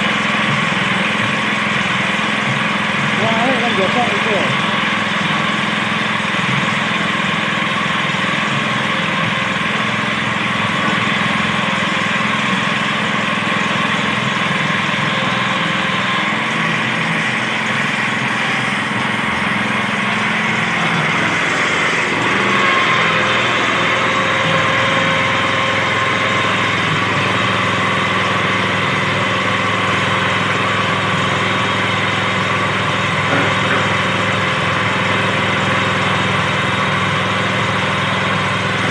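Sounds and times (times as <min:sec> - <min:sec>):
small engine running: 0:00.0 - 0:38.9.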